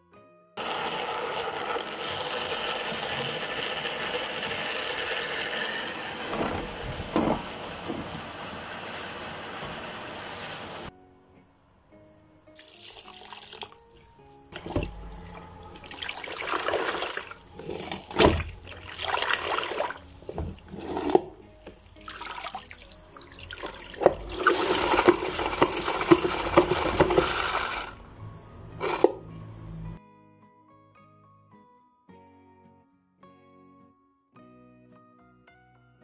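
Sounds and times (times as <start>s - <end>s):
water running and splashing: 12.6s - 28.0s.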